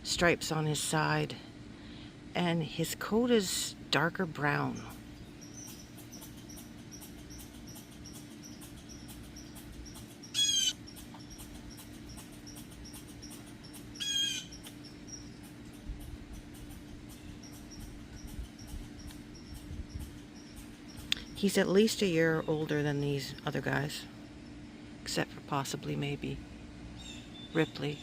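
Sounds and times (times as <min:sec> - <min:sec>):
faint steady hum: 0:00.0 - 0:28.0
bird calling: 0:04.8 - 0:22.7.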